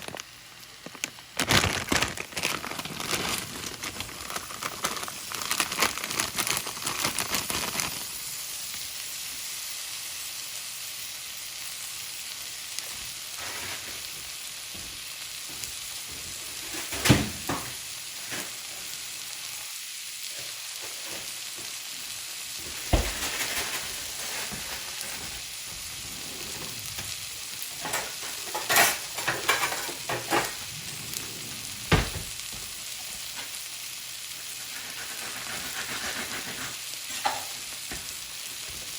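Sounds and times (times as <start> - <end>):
fried rice sizzling in a pan: 0.0 - 38.9
utensil scraping a pan: 34.7 - 37.5.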